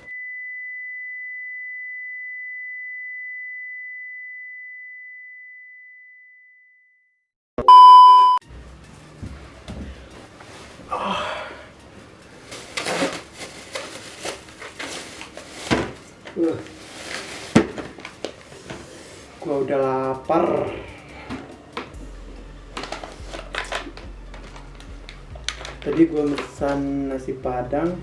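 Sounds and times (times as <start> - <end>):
loud short beep: 7.6 - 8.4
rustling: 12.4 - 19.3.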